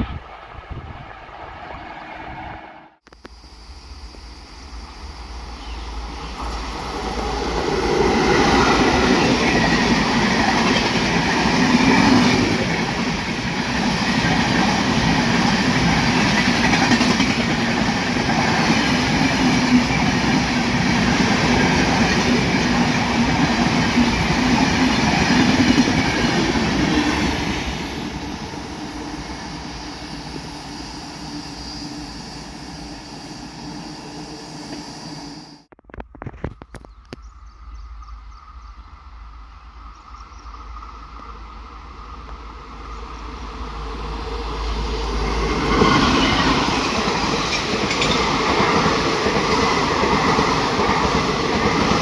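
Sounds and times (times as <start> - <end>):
train wheels clattering over rails: 6.3 - 30.8, 44.9 - 52.0.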